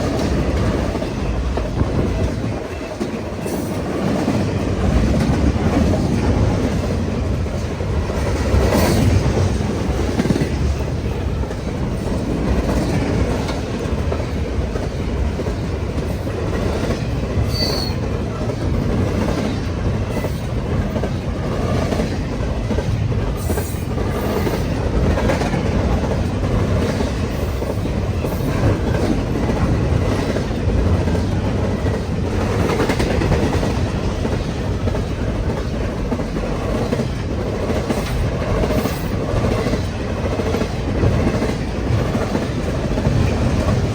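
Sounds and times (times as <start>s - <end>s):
freight train rolling past: 0.0s - 43.9s
high wheel squeal: 17.5s - 18.0s.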